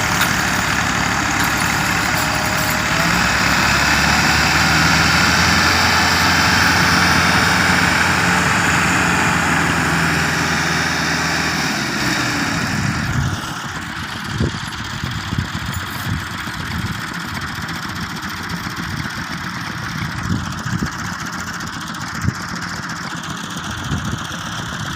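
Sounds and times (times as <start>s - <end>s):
engine knocking: 0.0s - 10.2s, 13.2s - 24.9s
tractor diesel engine running: 0.0s - 24.9s.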